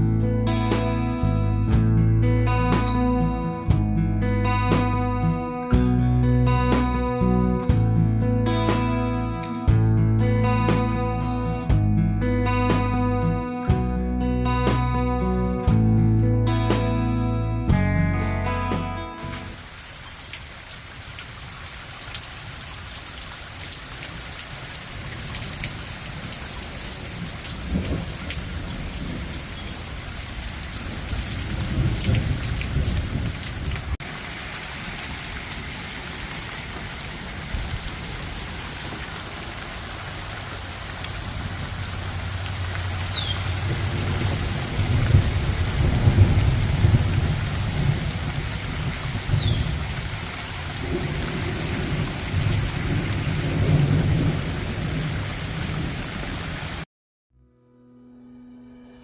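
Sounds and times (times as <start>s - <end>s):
heavy rain falling: 19.2s - 56.9s
thunder rumbling: 27.0s - 34.0s, 43.4s - 56.0s.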